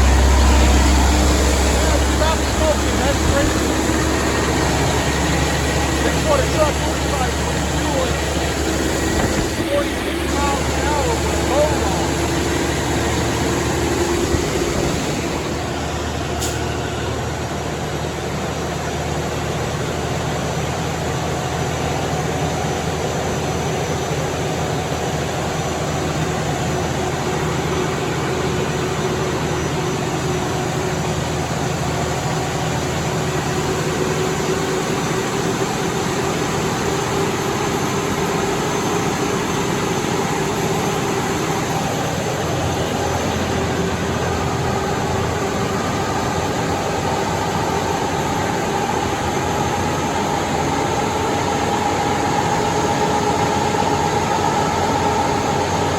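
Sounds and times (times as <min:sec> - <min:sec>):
tyres turning on rollers: 0:00.0 - 0:23.6
diesel engine running under load: 0:00.0 - 0:55.9.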